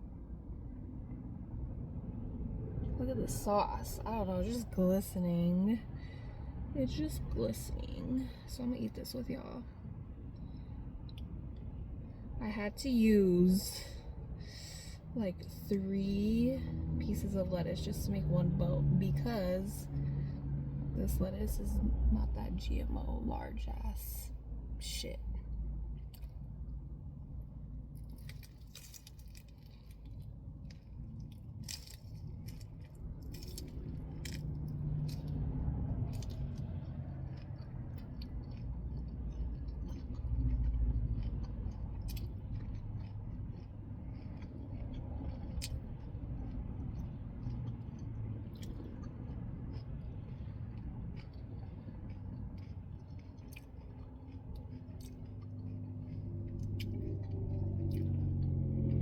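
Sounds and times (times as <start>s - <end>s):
low rumble: 0.0s - 59.0s
chewing crunchy lettuce: 24.9s - 59.0s.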